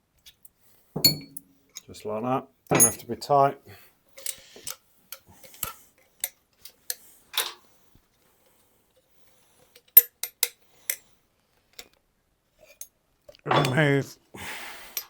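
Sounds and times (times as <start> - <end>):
metallic clinks of hand tools: 2.7 - 3.1.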